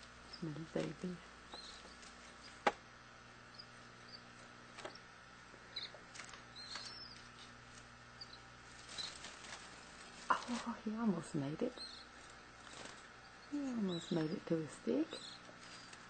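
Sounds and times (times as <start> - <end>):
young canaries cheeping: 0.2 - 2.6, 3.4 - 5.1, 5.7 - 7.5, 8.1 - 9.3, 11.3 - 16.0.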